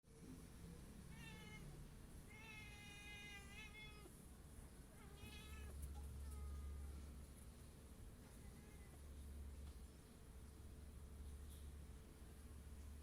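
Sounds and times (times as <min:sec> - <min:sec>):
faint cat meowing: 0:01.1 - 0:04.2, 0:04.9 - 0:06.9, 0:08.2 - 0:09.1.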